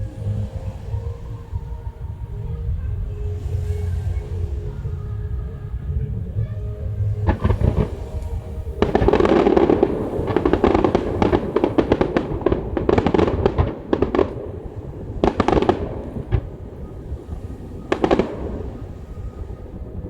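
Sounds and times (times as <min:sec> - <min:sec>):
low rumble: 0:00.0 - 0:20.0
fireworks crackling bangs: 0:07.2 - 0:19.8.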